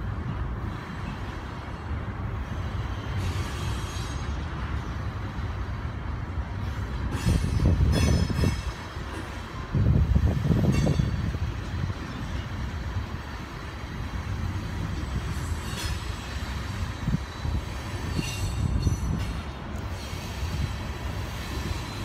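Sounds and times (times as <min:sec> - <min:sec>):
train cars rumbling on rails: 0:00.0 - 0:22.0
thin high wheel squeal: 0:02.9 - 0:04.5, 0:07.1 - 0:08.9, 0:15.0 - 0:22.0.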